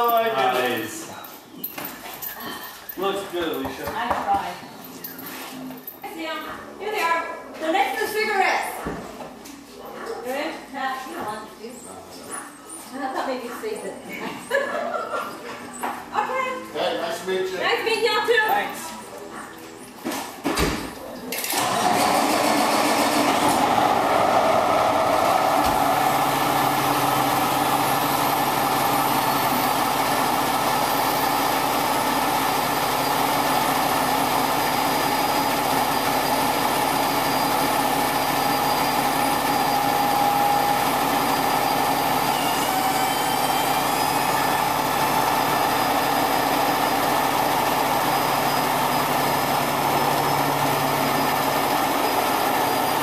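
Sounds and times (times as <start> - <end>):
heavy truck engine running: 21.5 - 53.0.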